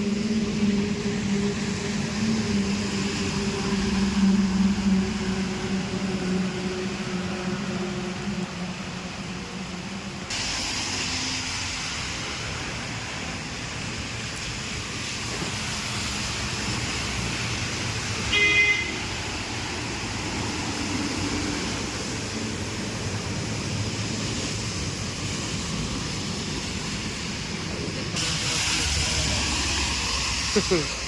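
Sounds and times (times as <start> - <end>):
street traffic noise: 0.0 - 31.0
bright hiss: 10.3 - 31.0
vehicle horn toot: 18.3 - 19.0.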